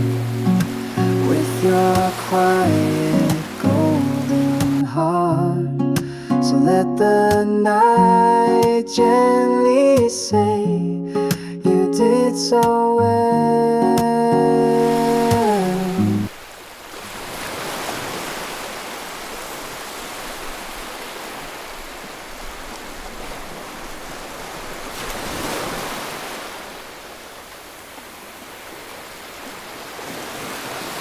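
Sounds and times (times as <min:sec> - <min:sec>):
waves washing onto shore: 0:00.0 - 0:05.0, 0:14.0 - 0:31.0.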